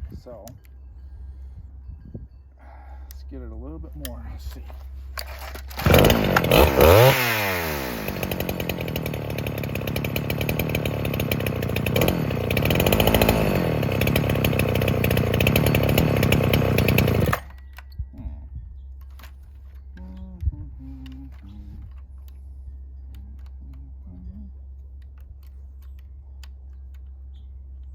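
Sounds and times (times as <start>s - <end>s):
chainsaw revving and idling: 5.3s - 17.5s.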